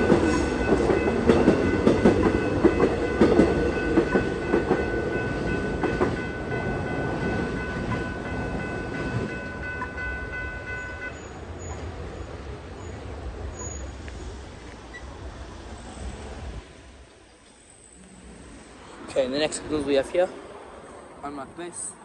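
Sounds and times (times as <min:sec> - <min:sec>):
high ringing tone: 0:00.0 - 0:11.8
train rumbling past: 0:00.0 - 0:22.0.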